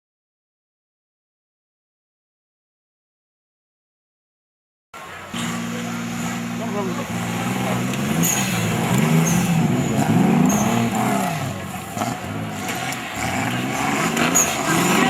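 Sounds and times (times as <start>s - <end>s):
engine revving: 5.2s - 15.0s.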